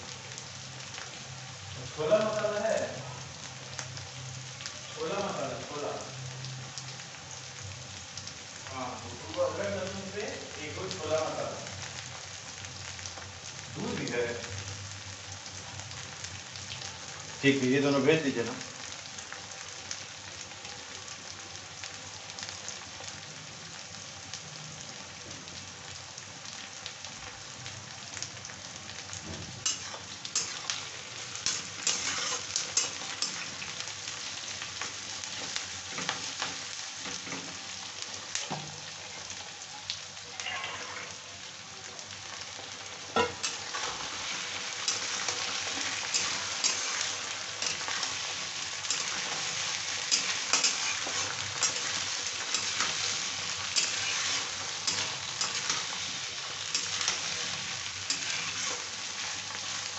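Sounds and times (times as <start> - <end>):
onions sizzling in oil: 0.0 - 59.9
metal spatula scraping pan: 31.4 - 33.6, 50.1 - 56.0, 56.7 - 58.9.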